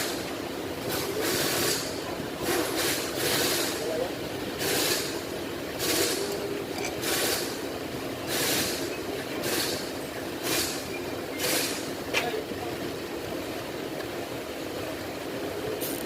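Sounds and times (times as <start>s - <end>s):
short bursts of hiss: 0.9s - 3.8s, 4.6s - 5.2s, 7.0s - 7.6s, 8.3s - 11.9s.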